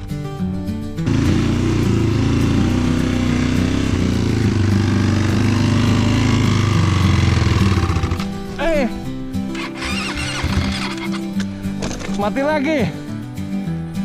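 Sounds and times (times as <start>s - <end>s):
motorcycle engine revving: 0.9s - 11.8s.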